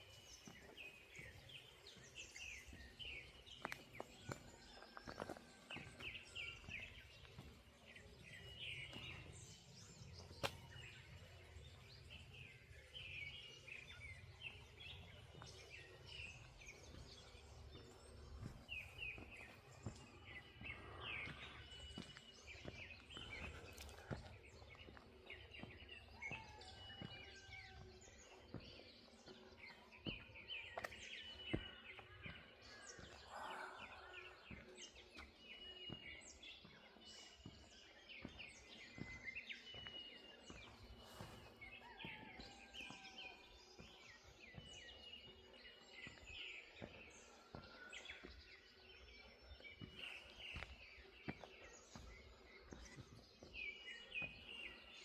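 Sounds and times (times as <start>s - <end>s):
soft footsteps: 0.0s - 12.1s, 14.2s - 33.5s, 34.2s - 55.0s
small birds chirping and whistling: 12.0s - 55.0s.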